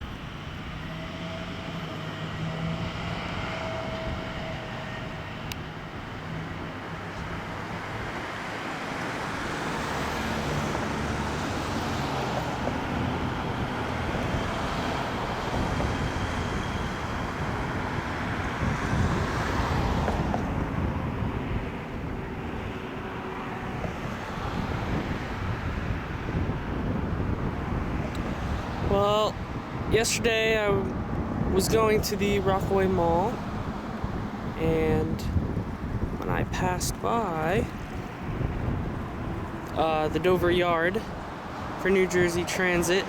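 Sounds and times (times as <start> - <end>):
vehicle engine hum: 0.0 - 43.0.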